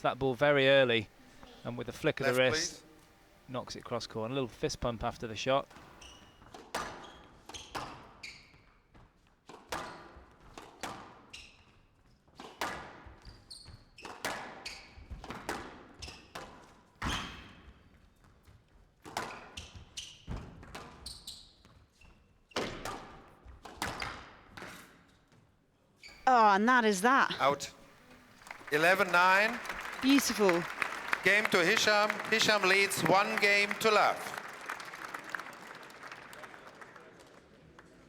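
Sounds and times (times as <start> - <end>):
shoes squeaking on court floor: 5.7 - 8.8, 13.2 - 15.1, 19.3 - 22.6
squash ball hit by rackets: 12.4 - 13.0.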